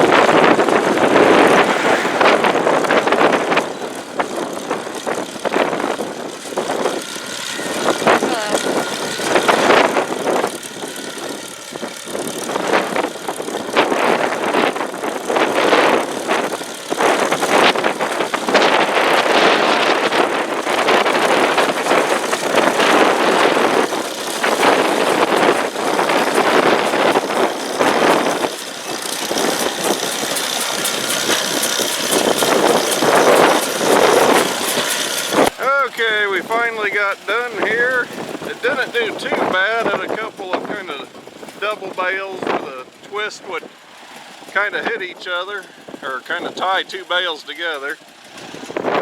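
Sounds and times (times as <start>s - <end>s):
engine running steadily: 0.0s - 49.0s
hay baler working: 0.0s - 49.0s.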